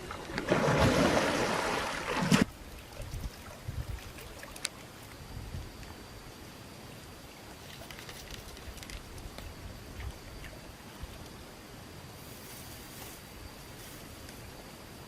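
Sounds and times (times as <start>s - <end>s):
water splashing and rushing: 0.0s - 2.6s.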